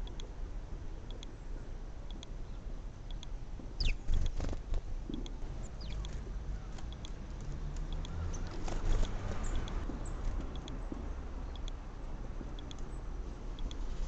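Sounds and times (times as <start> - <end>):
small birds chirping: 1.1 - 14.0
low rumble: 4.8 - 13.8.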